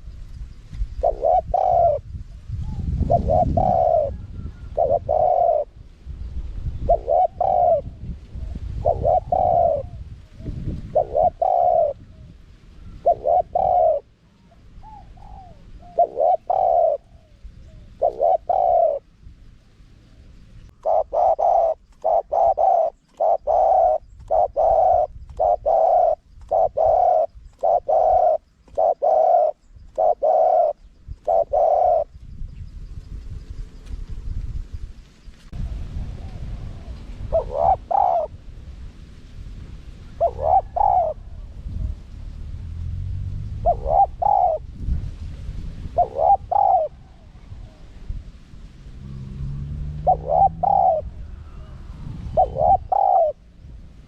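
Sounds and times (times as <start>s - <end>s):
dove cooing: 0.9s - 5.8s, 6.7s - 19.1s, 20.2s - 32.2s, 36.0s - 38.4s, 40.0s - 42.1s, 43.4s - 45.0s, 45.9s - 48.2s, 49.0s - 54.0s
low rumble: 32.3s - 46.0s, 46.9s - 54.0s.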